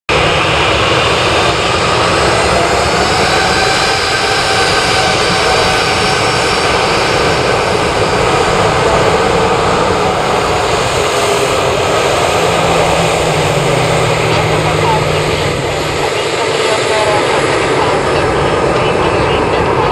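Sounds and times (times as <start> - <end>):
jet engines roaring: 0.1 - 19.9.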